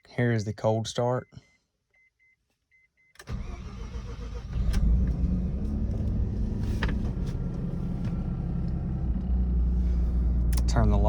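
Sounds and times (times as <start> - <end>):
rotary engine cranking and idling: 3.2 - 11.0.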